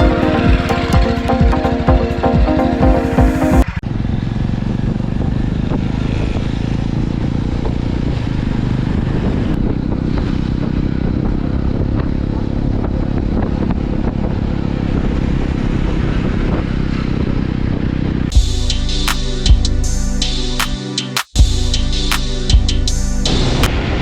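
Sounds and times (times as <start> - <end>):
motorcycle engine running: 0.0 - 18.6.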